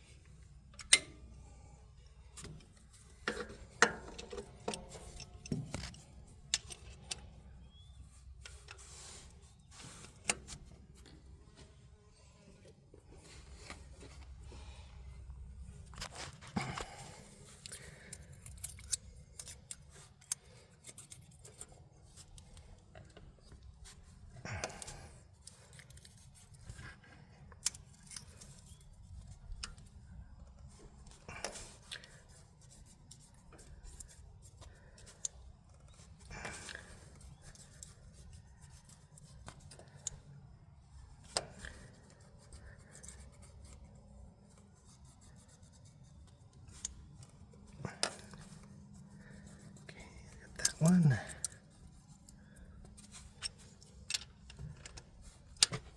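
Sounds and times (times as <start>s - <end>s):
small metallic clicks and taps: 0.7s - 1.4s, 2.4s - 8.8s, 17.6s - 23.7s, 24.6s - 40.3s, 46.0s - 55.9s.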